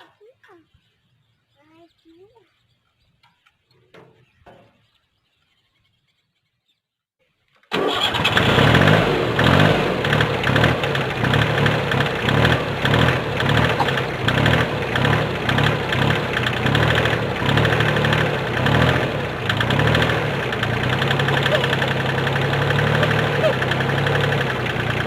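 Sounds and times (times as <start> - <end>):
tractor engine running: 7.7 - 25.0.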